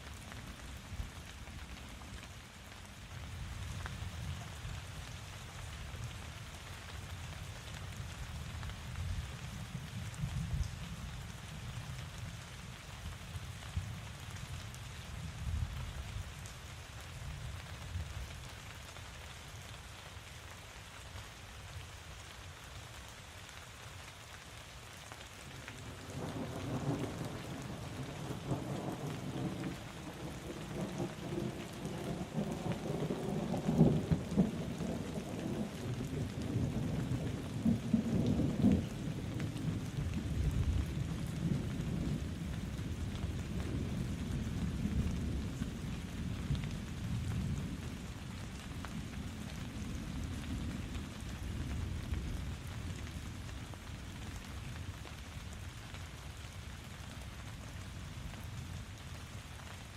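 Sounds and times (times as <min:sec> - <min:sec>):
steady rain falling: 0:00.0 - 0:59.9
thunder rumbling: 0:26.0 - 0:47.8.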